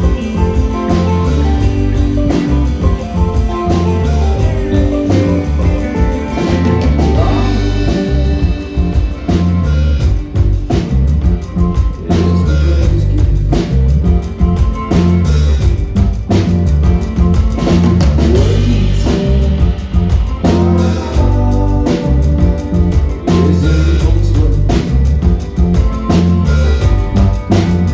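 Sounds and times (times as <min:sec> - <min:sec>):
live rock band playing: 0:00.0 - 0:27.9.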